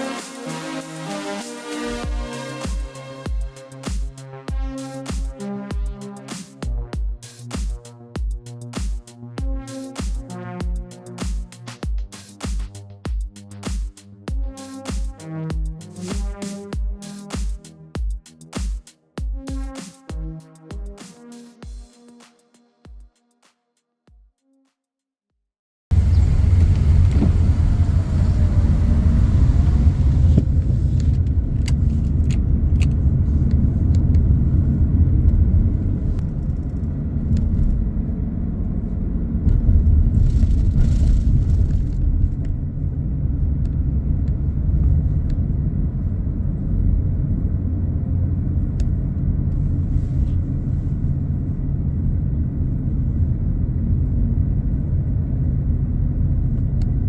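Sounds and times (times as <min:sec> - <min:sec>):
car engine and tyres rumbling: 0:25.9 - 0:57.0.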